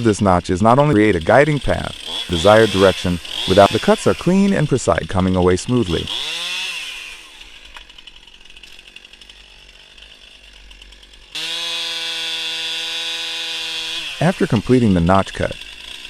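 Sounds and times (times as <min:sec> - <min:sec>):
chainsaw engine: 0:00.0 - 0:16.0.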